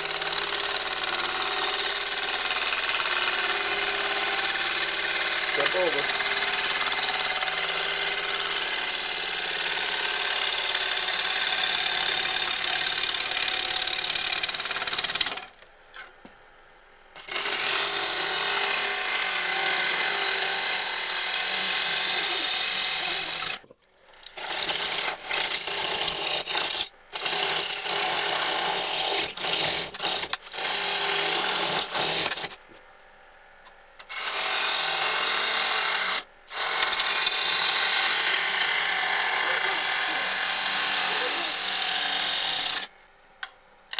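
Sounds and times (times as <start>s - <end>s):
lathe gouge rasping wood: 2.5s - 14.1s, 17.3s - 23.6s, 36.6s - 42.8s.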